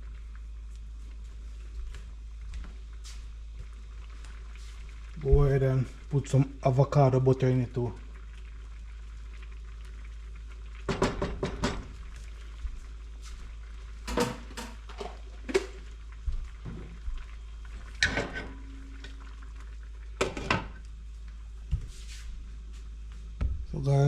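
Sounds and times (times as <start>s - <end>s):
steady low hum: 11.8s - 24.0s
utensils and pots clattering: 14.1s - 15.8s, 18.0s - 18.8s.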